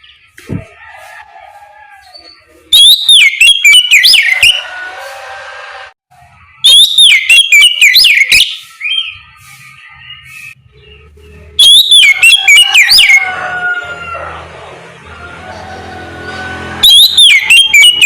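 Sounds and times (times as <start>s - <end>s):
bird whistled song: 2.0s - 4.6s, 6.5s - 13.2s, 16.8s - 18.0s.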